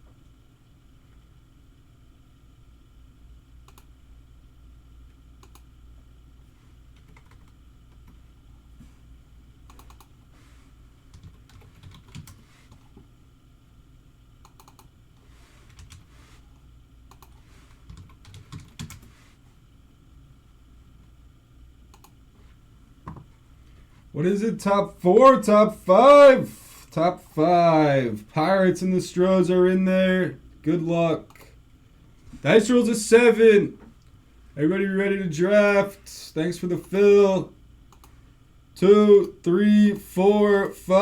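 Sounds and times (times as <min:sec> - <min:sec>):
low steady hum: 0:00.0 - 0:41.0
keyboard typing: 0:07.0 - 0:08.2, 0:09.7 - 0:10.1, 0:11.1 - 0:12.9, 0:15.7 - 0:16.1, 0:17.1 - 0:19.1.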